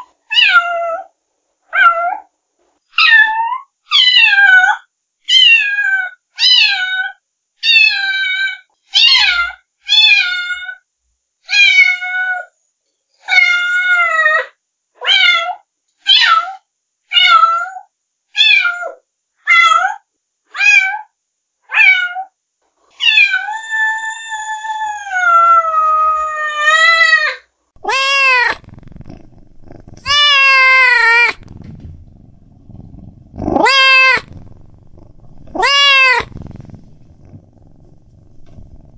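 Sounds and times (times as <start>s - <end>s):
cat meowing: 23.0s - 38.9s.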